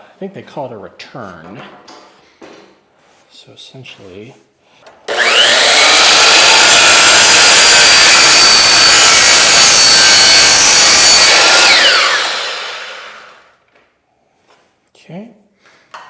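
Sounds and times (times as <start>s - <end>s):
miter saw cutting wood: 5.1s - 13.5s.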